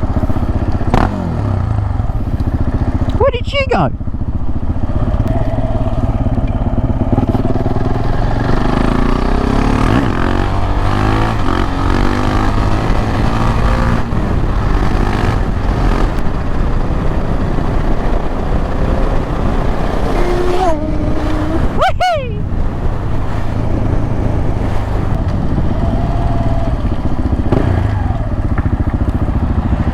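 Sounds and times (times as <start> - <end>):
motorcycle engine running: 0.0 - 29.9.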